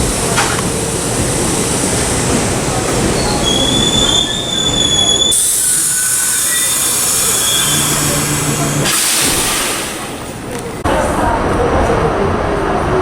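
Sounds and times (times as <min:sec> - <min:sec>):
wheels squealing against rail: 0:03.0 - 0:09.8
train high hiss: 0:03.4 - 0:10.4.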